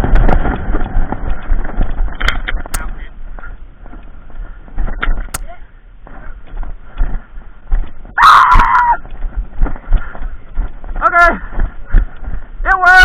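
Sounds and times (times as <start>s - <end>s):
airsoft shotgun pops: 2.7s - 2.9s, 5.3s - 5.5s
person yelling: 12.7s - 13.0s.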